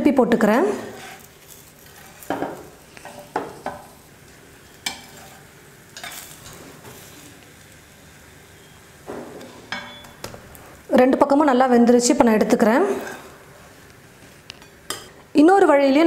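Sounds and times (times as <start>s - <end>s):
food sizzling on a griddle: 0.6s - 11.4s
metal spatula scraping and tapping: 4.8s - 5.4s, 6.0s - 6.6s, 14.5s - 15.1s.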